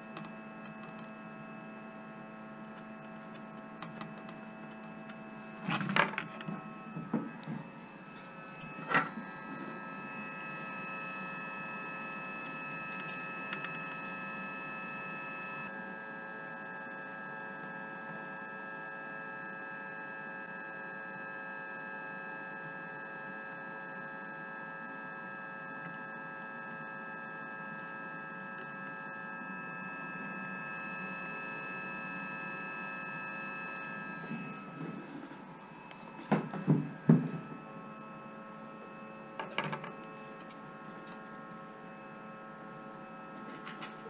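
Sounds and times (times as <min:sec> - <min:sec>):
electrical hum: 0:00.0 - 0:44.0
high whining tones: 0:03.0 - 0:15.7, 0:29.0 - 0:44.0.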